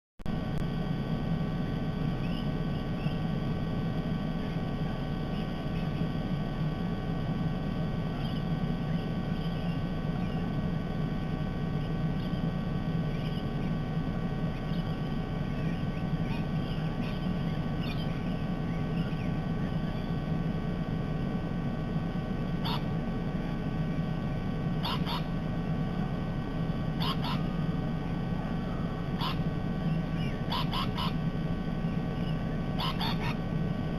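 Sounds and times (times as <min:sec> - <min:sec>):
low outdoor rumble: 0:00.3 - 0:33.9
faint bird chirps: 0:02.1 - 0:03.4, 0:04.3 - 0:06.7, 0:08.0 - 0:10.6, 0:11.7 - 0:20.4, 0:22.5 - 0:25.4, 0:26.9 - 0:33.4
sharp bird calls: 0:02.2 - 0:03.3, 0:08.1 - 0:10.5, 0:13.1 - 0:13.9, 0:14.5 - 0:20.2, 0:22.5 - 0:24.1, 0:24.8 - 0:25.4, 0:27.0 - 0:31.2, 0:31.8 - 0:33.4.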